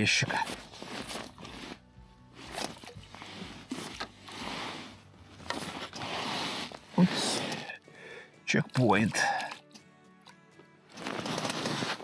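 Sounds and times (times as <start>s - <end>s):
rustling and scraping handling: 0.0s - 7.8s, 10.9s - 12.0s.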